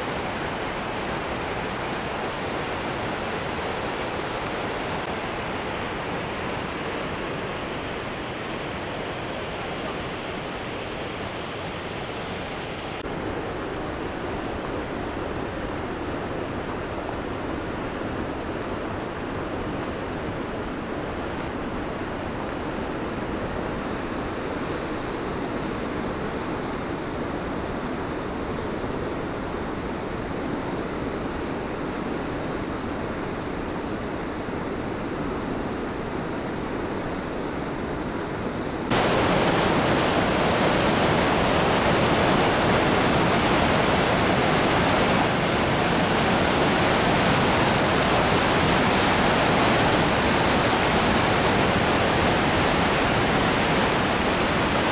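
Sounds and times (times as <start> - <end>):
waterfall rushing: 0.0 - 13.0, 38.9 - 54.9.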